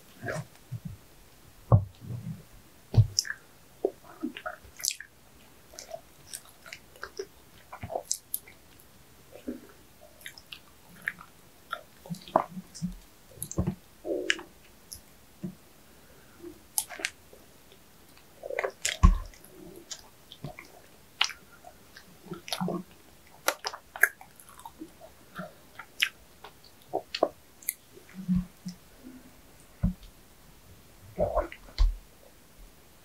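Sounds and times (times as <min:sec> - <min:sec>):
wet mouth clicks and smacks: 0:16.8 - 0:22.8, 0:23.4 - 0:24.7.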